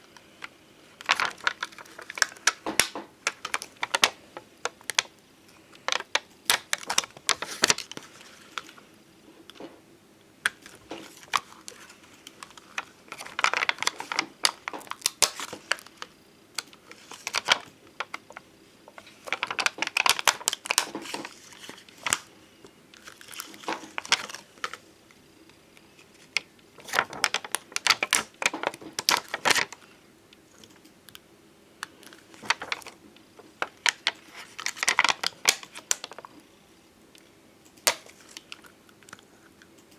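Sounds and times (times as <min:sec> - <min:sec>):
plastic sheets crinkling: 0:01.0 - 0:08.9, 0:10.4 - 0:22.4, 0:23.0 - 0:24.8, 0:26.0 - 0:29.9, 0:31.8 - 0:36.4, 0:37.8 - 0:39.2.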